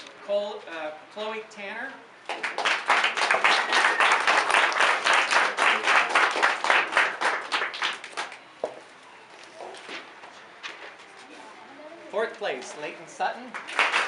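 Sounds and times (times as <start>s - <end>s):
audience applauding: 2.3s - 8.4s, 13.5s - 14.0s.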